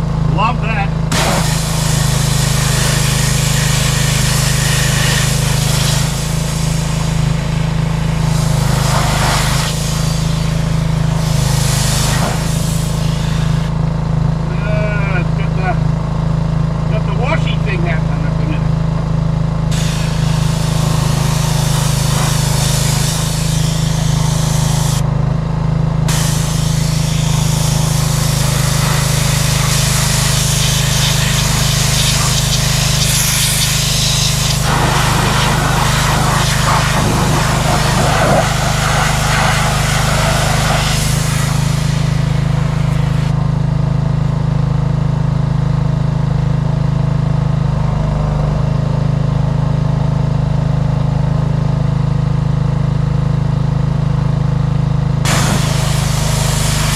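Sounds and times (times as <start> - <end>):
pressure washer engine running: 0.0 - 56.9
water jet spraying: 1.1 - 13.7, 19.7 - 25.0, 26.1 - 43.4, 55.3 - 56.9.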